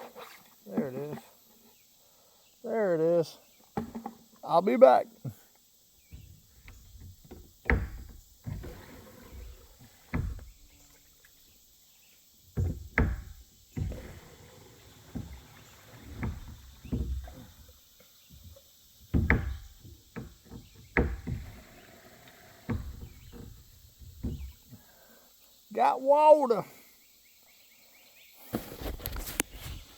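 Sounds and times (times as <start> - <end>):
handling thumps and knocks: 3.7 - 4.3, 6.0 - 10.6, 12.5 - 17.7, 18.3 - 21.8, 22.7 - 24.8.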